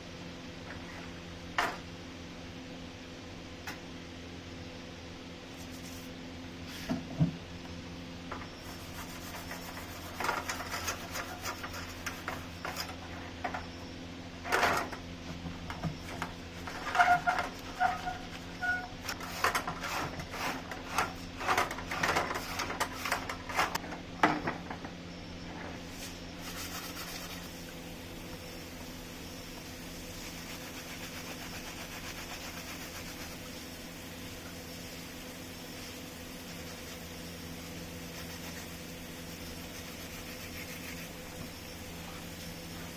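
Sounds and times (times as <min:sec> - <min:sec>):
steady low hum: 0:00.0 - 0:42.9
short squeaks: 0:16.0 - 0:19.2.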